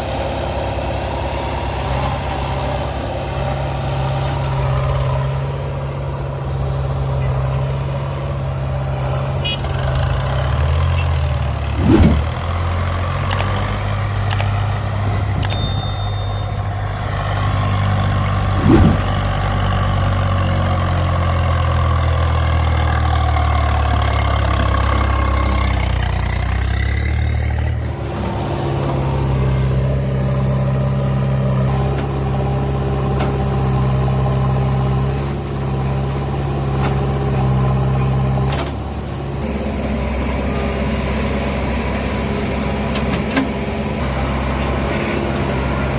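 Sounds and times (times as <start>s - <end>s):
diesel engine running: 0.0s - 45.9s
loud knocks: 11.8s - 12.5s, 18.6s - 19.3s.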